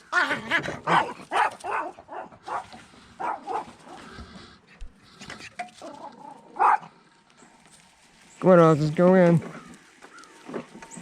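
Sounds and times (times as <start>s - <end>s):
big dog barking and whining: 0.0s - 4.1s, 5.8s - 6.9s.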